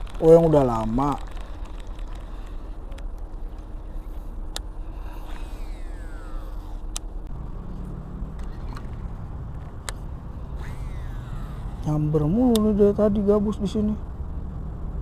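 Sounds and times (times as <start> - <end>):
low engine hum: 0.0 - 15.0
road traffic rumble: 0.0 - 15.0
vehicle passing by: 5.0 - 15.0
sharp clicks: 12.4 - 12.8.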